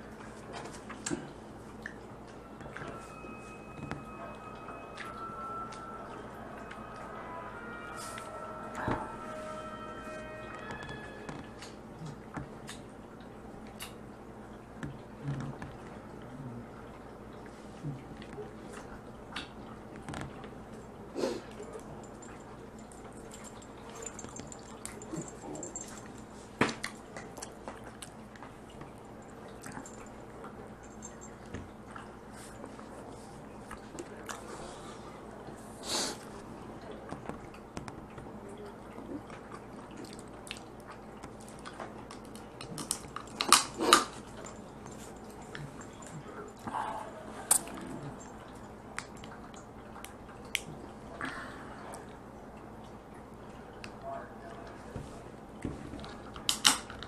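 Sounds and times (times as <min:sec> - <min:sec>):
person chewing crab: 0:38.9 - 0:46.7
crab shell cracking: 0:42.2 - 0:44.1.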